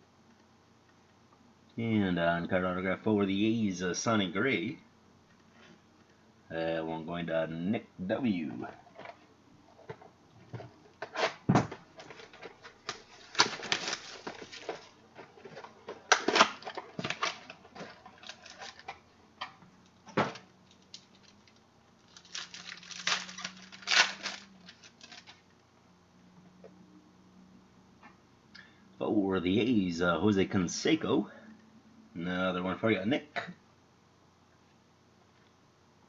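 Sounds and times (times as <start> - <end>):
trading cards rustling: 11.9 - 19.1, 20.6 - 25.5.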